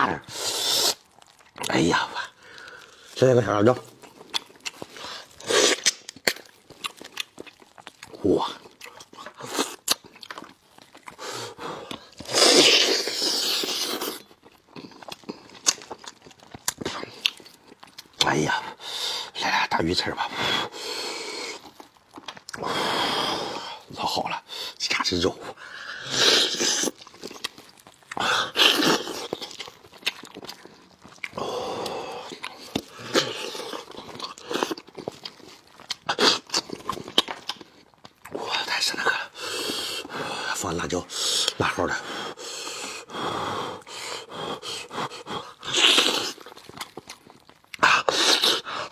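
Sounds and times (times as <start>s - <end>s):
loud slurp: 0.0s - 1.1s, 11.2s - 14.2s, 26.0s - 27.0s, 28.2s - 29.4s, 43.6s - 46.5s, 47.8s - 48.9s
sucking and slurping: 0.0s - 3.4s, 4.0s - 7.0s, 7.9s - 17.4s, 18.2s - 48.9s
wet chewing clicks and smacks: 0.8s - 18.6s, 21.1s - 22.6s, 26.5s - 41.9s, 44.6s - 48.9s.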